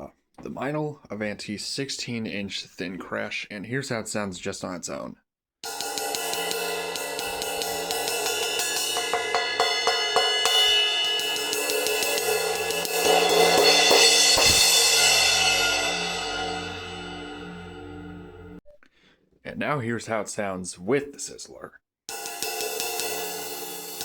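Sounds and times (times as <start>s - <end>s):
crash cymbal hits: 5.7s - 18.6s.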